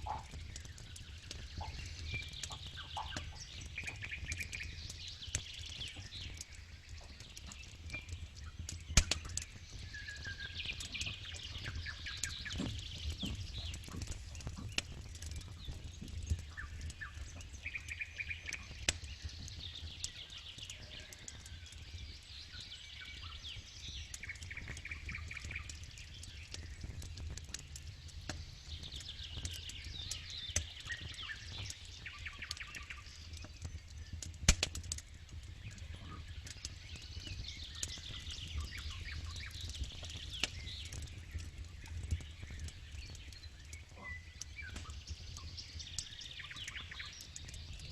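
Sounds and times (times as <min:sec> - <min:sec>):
birds singing trills: 0:00.0 - 0:47.9
campfire crackling and popping: 0:00.0 - 0:47.9.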